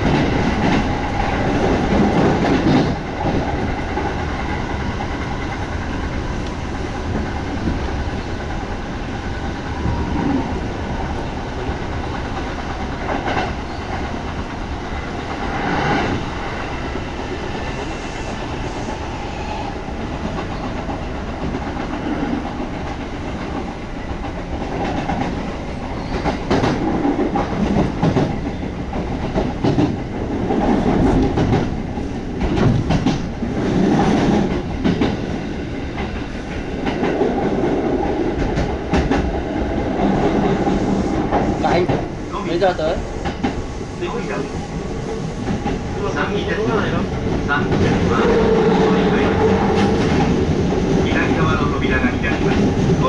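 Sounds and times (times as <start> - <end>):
clickety-clack over rail joints: 0.0 - 18.9, 19.8 - 53.0
train wheels rumbling on rails: 0.0 - 53.0.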